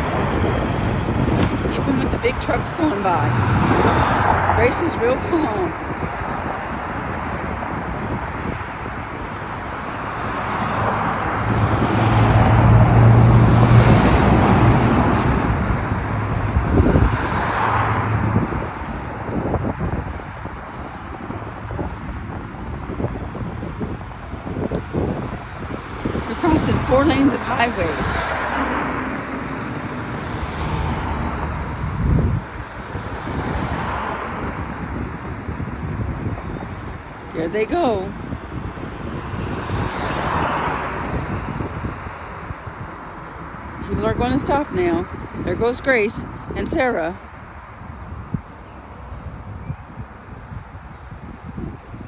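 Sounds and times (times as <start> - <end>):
tyres rushing on highway: 0.0 - 52.0
wind buffeting microphone: 0.0 - 52.0
heavy vehicle engine drone: 18.1 - 33.2.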